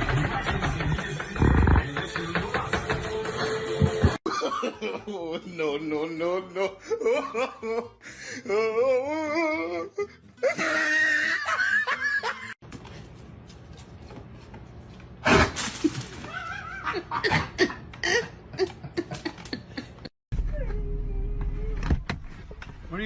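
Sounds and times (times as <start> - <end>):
people laughing: 3.9 - 8.0, 10.4 - 12.6, 16.2 - 20.1.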